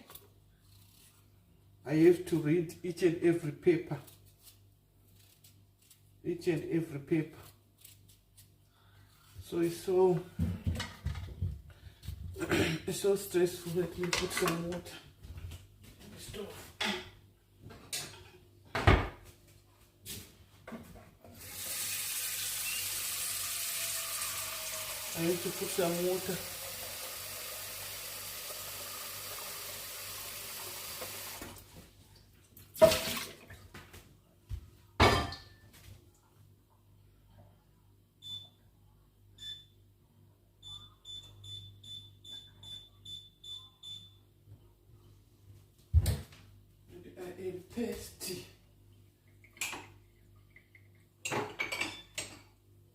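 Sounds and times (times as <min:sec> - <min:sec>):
kitchen tap water running: 0:21.3 - 0:31.7, 0:32.8 - 0:33.4
stove control panel beeps: 0:38.2 - 0:38.6, 0:40.6 - 0:44.2.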